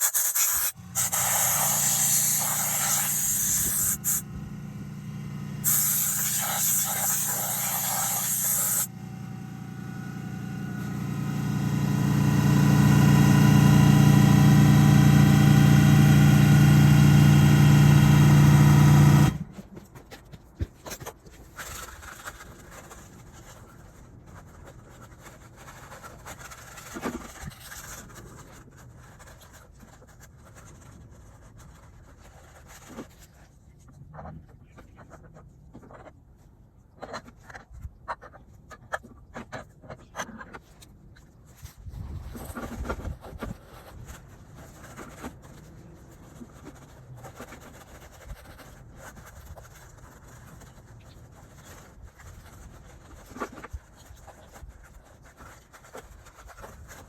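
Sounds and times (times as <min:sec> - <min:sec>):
short hiss blast: 0:00.0 - 0:04.2, 0:05.6 - 0:08.9
motor humming steadily: 0:00.6 - 0:19.5.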